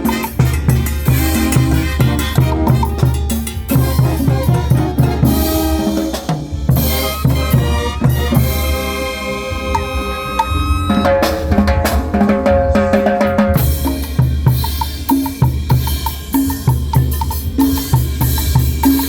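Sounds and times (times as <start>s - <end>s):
horn notes: 0.0s - 14.3s
bass drum and snare beat: 0.0s - 19.0s.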